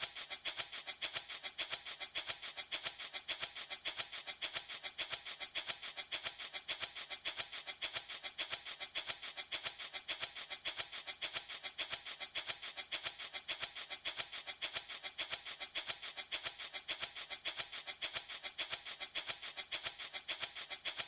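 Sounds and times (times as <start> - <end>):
wooden rattle shaken: 0.0 - 21.0.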